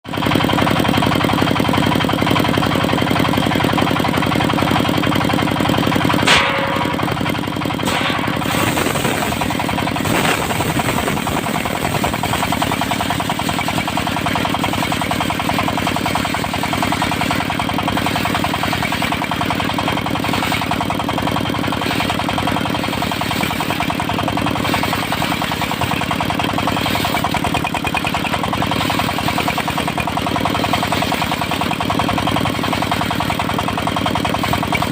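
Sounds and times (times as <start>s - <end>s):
sawmill engine chugging: 0.1s - 34.9s
sharp knock: 6.2s - 12.6s.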